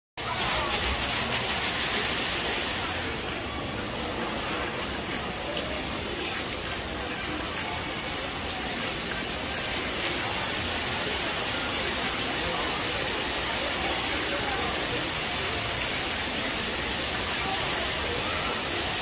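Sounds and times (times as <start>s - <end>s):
fountain water splashing: 0.2s - 19.0s.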